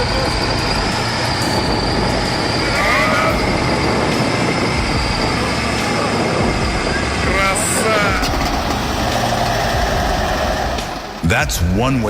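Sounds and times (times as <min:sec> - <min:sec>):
heavy machinery running with whine: 0:00.0 - 0:12.0.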